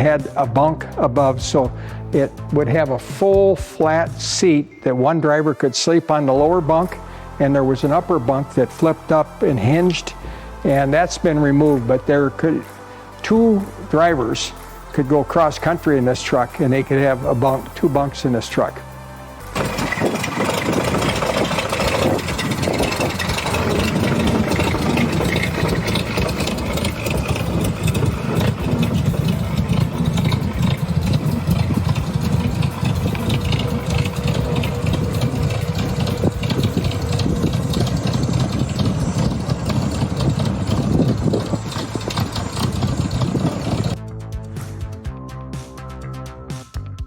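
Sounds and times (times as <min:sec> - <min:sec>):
music: 0:00.0 - 0:47.0
truck engine driving away: 0:06.4 - 0:44.0.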